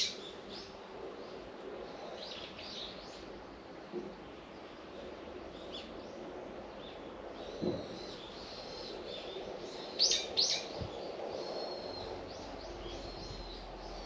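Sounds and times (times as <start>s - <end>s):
birds chirping and calling: 0.0s - 0.7s, 7.5s - 14.0s
downward-sweeping bird calls: 0.0s - 0.8s, 7.4s - 14.0s
faint outdoor background noise: 0.0s - 14.0s.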